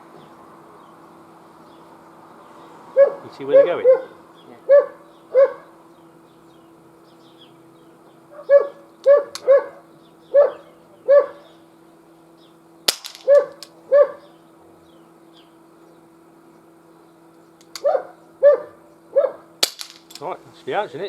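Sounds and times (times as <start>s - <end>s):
dog yapping: 3.0s - 5.8s, 8.3s - 11.6s, 13.2s - 14.3s, 17.8s - 19.5s
pistol firing cracks: 12.9s - 13.8s, 19.6s - 20.3s.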